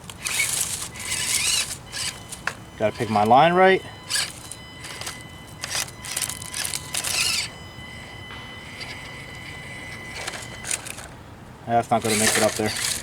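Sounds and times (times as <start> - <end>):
tyres scraping on rock: 0.0 - 3.2, 11.8 - 13.0
small electric motor whining: 0.0 - 11.2, 11.8 - 13.0.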